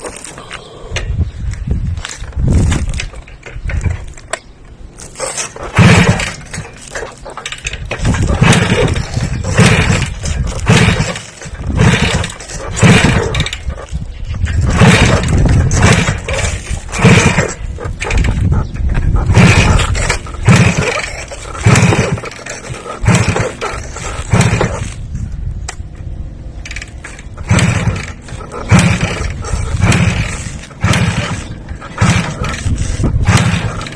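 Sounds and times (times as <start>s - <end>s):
motor revving in bursts: 5.3s - 6.6s, 8.0s - 13.6s, 14.6s - 18.6s, 19.2s - 25.0s, 27.4s - 33.9s.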